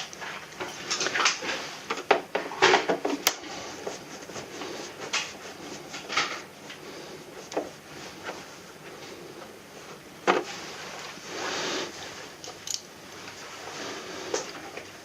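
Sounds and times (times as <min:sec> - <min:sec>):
plastic parts clicking and scraping: 0:12.4 - 0:12.9.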